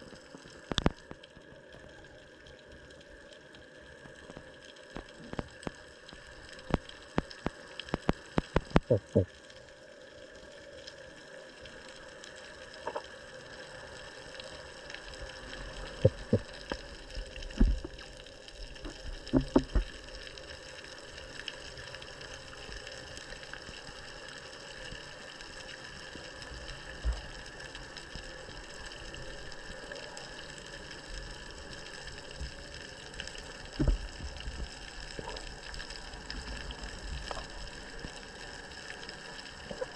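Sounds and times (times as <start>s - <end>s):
water sloshing and splashing: 15.4s - 18.1s, 18.7s - 20.1s
sharp clicks and knocks: 18.8s - 20.0s.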